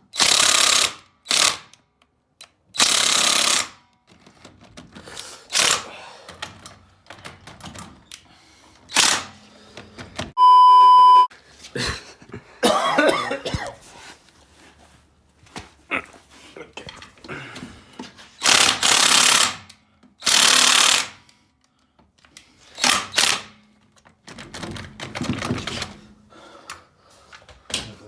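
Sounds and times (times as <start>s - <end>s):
electronic beep: 10.4s - 11.3s.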